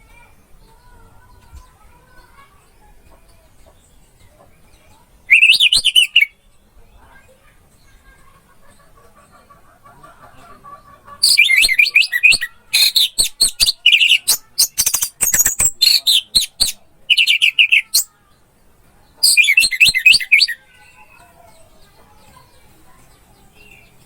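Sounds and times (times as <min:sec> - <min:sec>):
thrush singing: 0:05.3 - 0:06.3, 0:11.2 - 0:18.1, 0:19.2 - 0:20.6.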